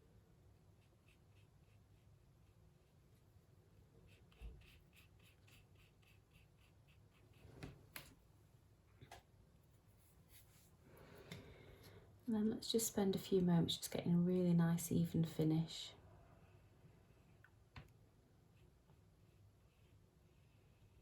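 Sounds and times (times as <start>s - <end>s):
paintbrush strokes on paper: 4.0s - 7.7s, 9.7s - 10.8s.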